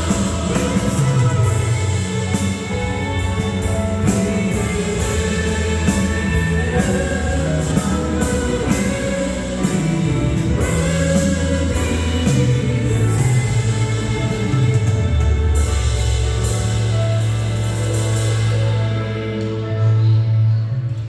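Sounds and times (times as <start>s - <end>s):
person singing: 0.0s - 15.5s
band playing worship song: 0.0s - 21.0s.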